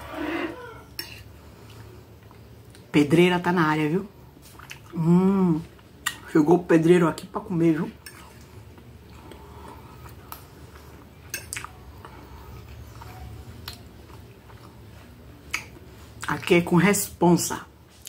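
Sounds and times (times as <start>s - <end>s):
person chewing food: 0.6s - 2.9s, 4.4s - 6.3s, 8.0s - 16.4s.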